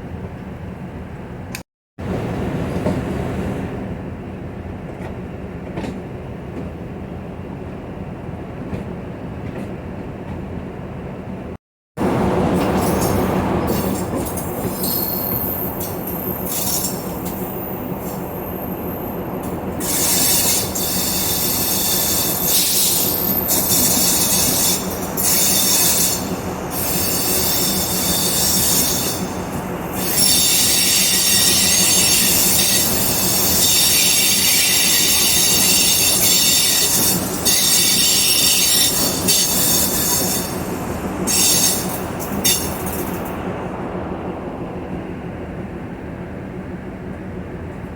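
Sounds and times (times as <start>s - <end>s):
train rumbling and humming: 0.0s - 47.9s
high-pitched wheel squeal: 14.7s - 42.7s.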